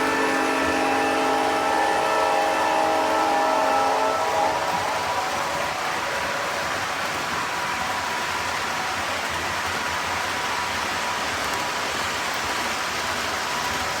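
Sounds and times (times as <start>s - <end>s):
faint steady whine: 0.0s - 10.6s
model train running on track: 0.0s - 14.0s.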